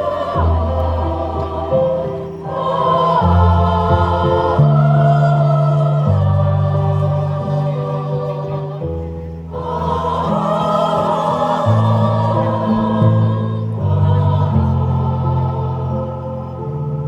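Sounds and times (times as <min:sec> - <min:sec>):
choir singing: 0:00.0 - 0:17.0
low accompaniment chords: 0:00.0 - 0:17.0.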